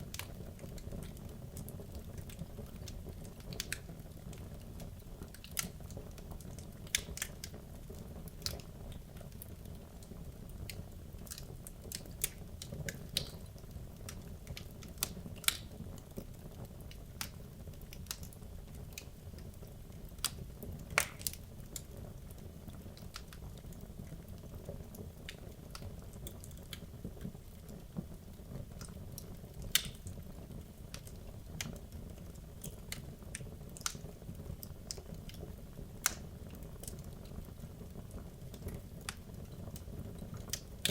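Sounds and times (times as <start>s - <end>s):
fire flames rumbling: 0.0s - 40.9s
wood fire crackling and popping: 0.0s - 40.9s.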